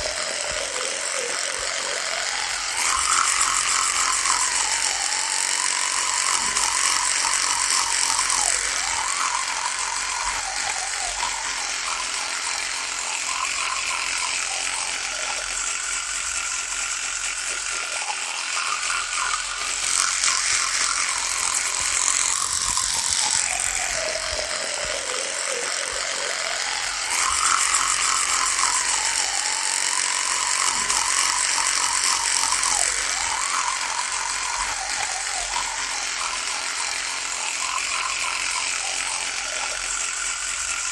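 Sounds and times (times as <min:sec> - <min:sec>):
electric toothbrush buzzing: 0:00.0 - 0:40.9.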